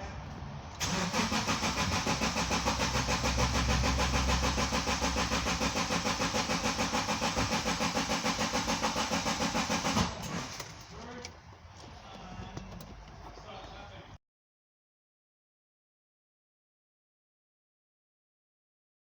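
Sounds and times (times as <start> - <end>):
car engine cranking: 0.8 - 11.1.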